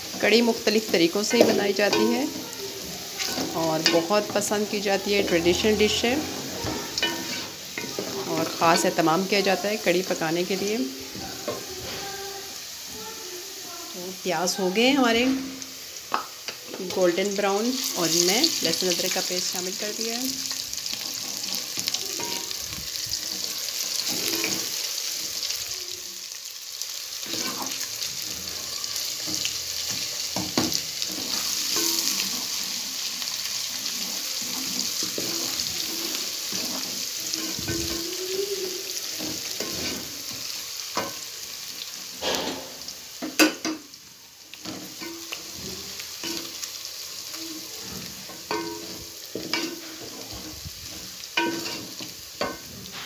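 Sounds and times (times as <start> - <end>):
onions sizzling in hot oil: 0.0 - 53.0
wooden spoon scraping and knocking pot: 33.9 - 38.1, 39.1 - 41.2.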